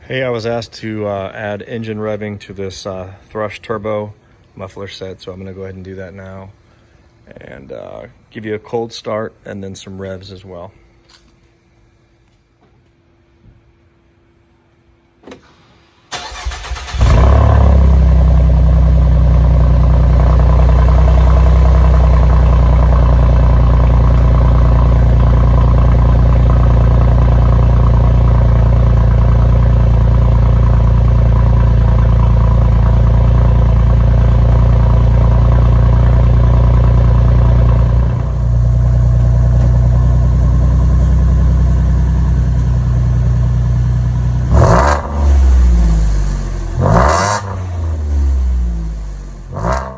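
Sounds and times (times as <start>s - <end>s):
car engine cranking and idling: 16.1s - 49.9s.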